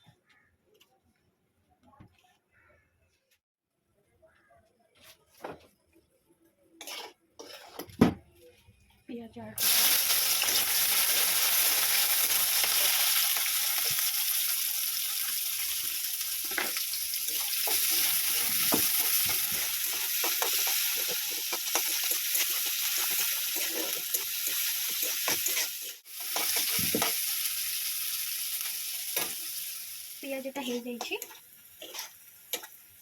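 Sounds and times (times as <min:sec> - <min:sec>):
spatula scraping pan: 0:06.8 - 0:08.0, 0:17.3 - 0:27.2, 0:30.6 - 0:32.8
onions sizzling in oil: 0:09.6 - 0:33.0.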